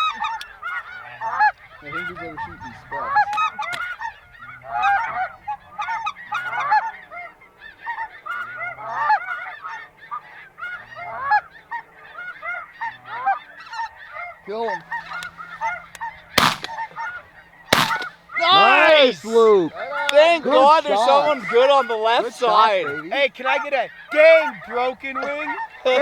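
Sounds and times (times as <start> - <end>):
shotgun shots: 16.4 - 16.8, 17.8 - 18.2
geese honking: 16.4 - 17.0, 17.8 - 26.0.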